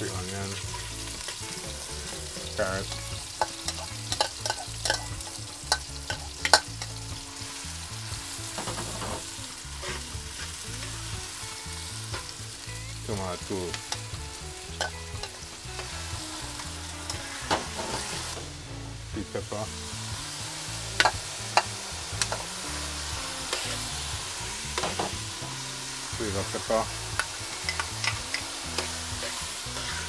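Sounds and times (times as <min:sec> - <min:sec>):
vegetables sizzling in oil: 0:00.0 - 0:30.0.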